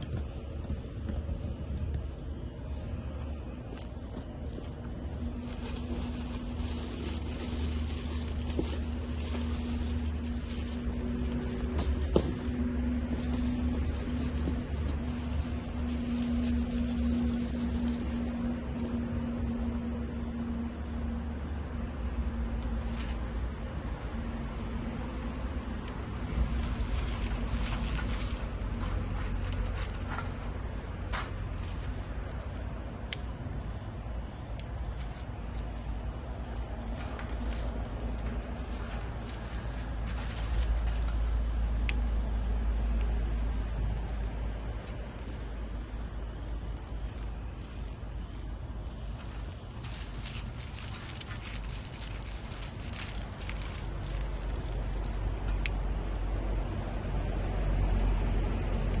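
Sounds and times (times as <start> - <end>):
faint hum: 0.0 - 57.2
wood fire rumbling and crackling: 0.0 - 59.0
wood fire crackling: 3.2 - 19.0, 43.8 - 55.8.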